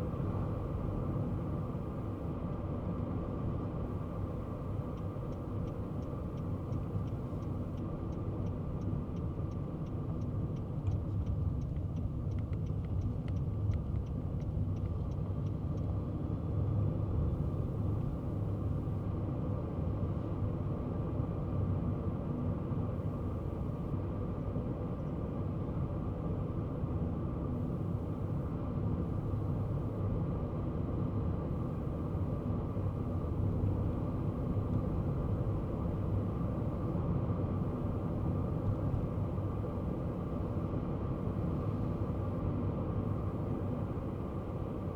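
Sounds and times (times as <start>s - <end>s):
car engine and tyre road noise: 0.0s - 44.9s
turn signal ticking: 4.5s - 16.0s.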